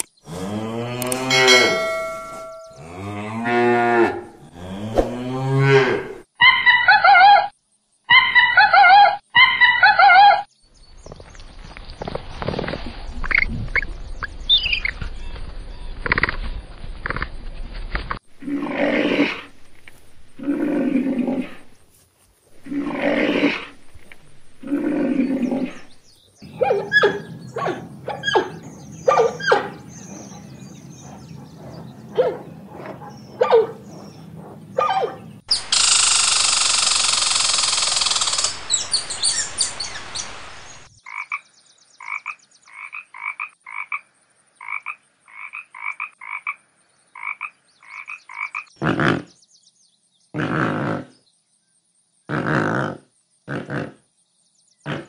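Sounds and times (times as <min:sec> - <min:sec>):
long low animal calls: 0:22.6 - 0:35.4
loud hiss: 0:35.6 - 0:40.9
quick croak-like chirps: 0:41.0 - 0:44.0, 0:44.6 - 0:49.4.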